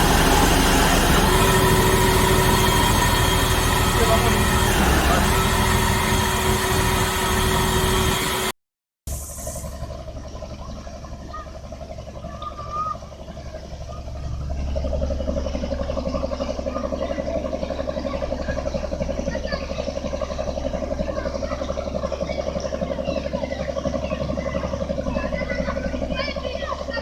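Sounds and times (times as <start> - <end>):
drilling rig machinery: 0.0 - 11.2
pulsing diesel engine drone: 0.0 - 27.0.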